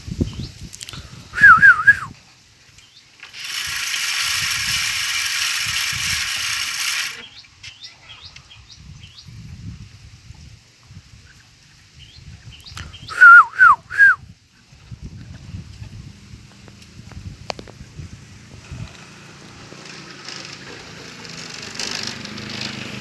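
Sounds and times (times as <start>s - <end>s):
bird warbling whistle: 1.4s - 2.1s, 12.9s - 14.2s
harsh rasping buzz: 3.2s - 7.3s.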